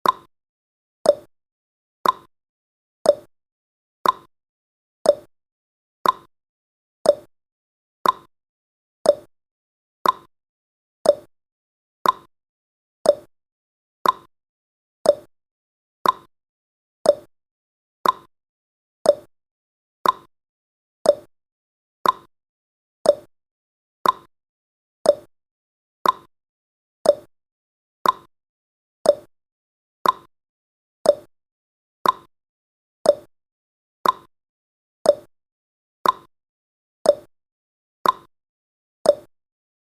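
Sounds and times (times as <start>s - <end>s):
clock ticking: 2.0s - 2.3s, 4.0s - 4.3s, 6.0s - 6.3s, 8.0s - 8.3s, 10.0s - 10.3s, 12.0s - 12.3s, 14.0s - 14.3s, 15.1s - 15.3s, 16.0s - 16.3s, 18.0s - 18.3s, 20.0s - 20.3s, 22.0s - 22.3s, 24.0s - 24.3s, 25.1s - 25.3s, 26.0s - 26.3s, 27.1s - 27.3s, 28.0s - 28.3s, 29.1s - 29.3s, 30.0s - 30.3s, 32.0s - 32.3s, 33.1s - 33.3s, 34.0s - 34.3s, 36.0s - 36.3s, 38.0s - 38.3s, 39.1s - 39.3s.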